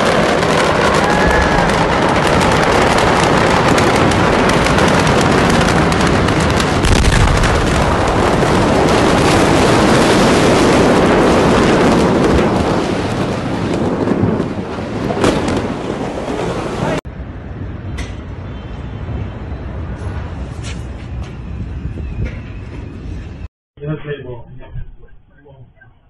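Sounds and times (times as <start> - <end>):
fireworks bursting: 0.0 - 16.3
fire crackling and popping: 0.0 - 17.0.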